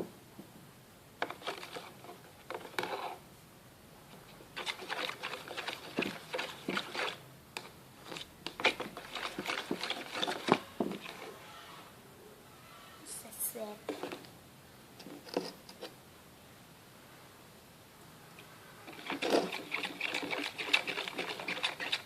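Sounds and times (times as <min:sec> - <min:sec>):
slime being stirred squelching: 0:01.3 - 0:02.2, 0:04.2 - 0:11.4, 0:18.8 - 0:22.0.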